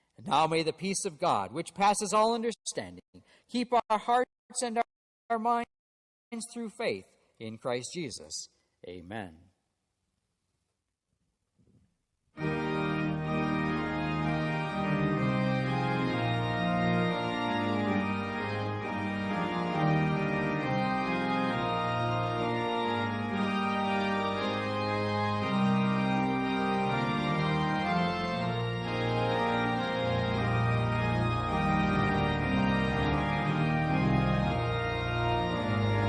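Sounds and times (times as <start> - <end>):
organ playing slow chords: 12.4 - 36.0.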